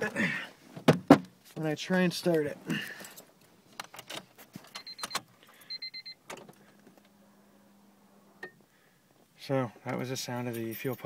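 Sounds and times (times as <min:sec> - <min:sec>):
high electronic beeps: 0:04.7 - 0:06.2.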